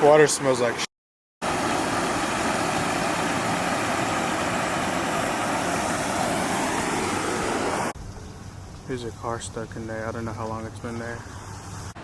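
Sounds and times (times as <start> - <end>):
floodwater rushing: 1.4 - 8.0.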